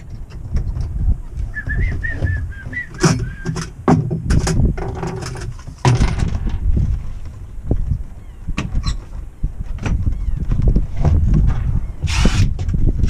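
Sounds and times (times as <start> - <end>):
plumbing knocks and clatters: 3.0 - 6.7
low rumble: 5.8 - 8.6.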